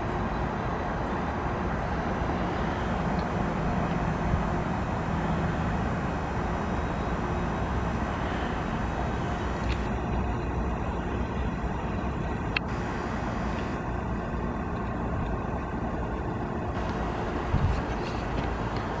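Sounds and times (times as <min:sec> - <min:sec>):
compressor hum: 0:00.0 - 0:19.0
continuous hiss: 0:00.0 - 0:19.0.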